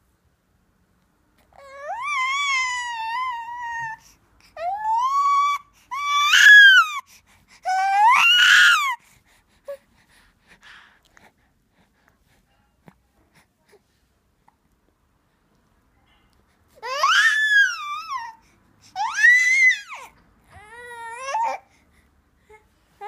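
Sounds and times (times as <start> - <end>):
newborn baby crying: 1.6 - 9.0, 16.8 - 18.4, 19.0 - 21.7.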